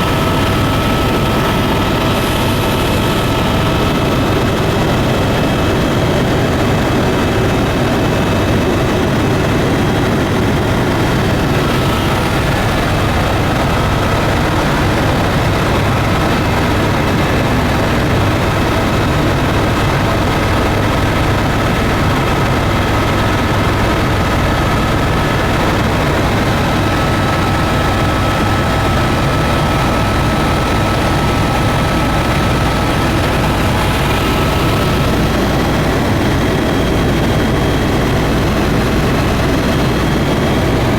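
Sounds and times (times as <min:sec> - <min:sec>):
airplane propellers droning: 0:00.0 - 0:40.9.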